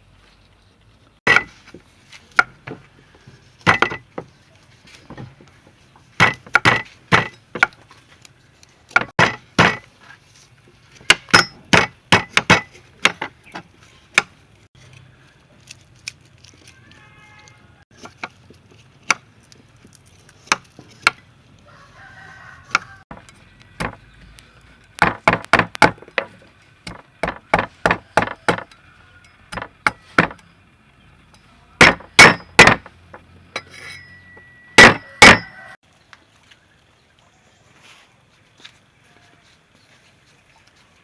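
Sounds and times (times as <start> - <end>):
cleaver chopping on wooden board: 1.3 - 1.6, 6.2 - 7.8, 9.0 - 9.9, 11.1 - 14.3, 23.8 - 24.0, 25.0 - 26.2, 26.9 - 28.7, 29.5 - 30.4, 31.8 - 32.9, 34.8 - 35.6.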